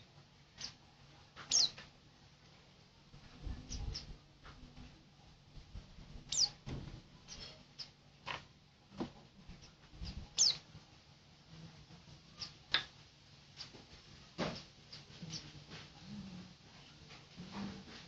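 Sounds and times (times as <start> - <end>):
small bird chirping: 0.5 - 0.8, 1.4 - 1.9, 3.6 - 4.2, 6.2 - 6.6, 7.2 - 8.0, 9.5 - 10.7, 12.3 - 12.8, 13.5 - 13.8, 14.5 - 15.6.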